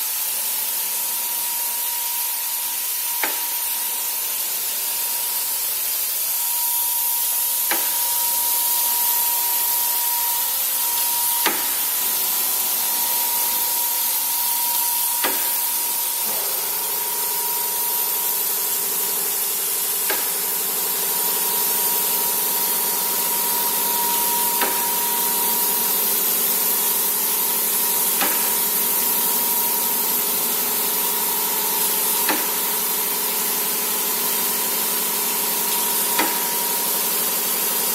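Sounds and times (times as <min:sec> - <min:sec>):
cnc router hiss and whine: 0:00.0 - 0:37.9
lower machine tone: 0:06.3 - 0:26.7.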